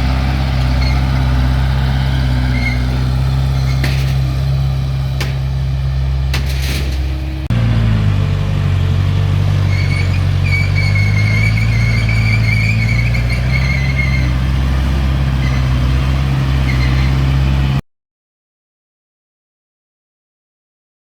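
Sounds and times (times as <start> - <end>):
diesel engine running: 0.0 - 17.8
wavering high squeal: 2.3 - 3.0, 9.7 - 14.4.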